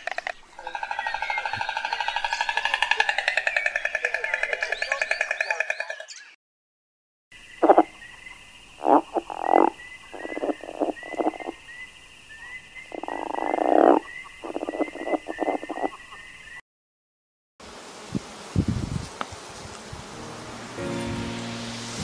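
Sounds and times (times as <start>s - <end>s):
frogs croaking: 0.0s - 6.3s, 7.3s - 16.6s.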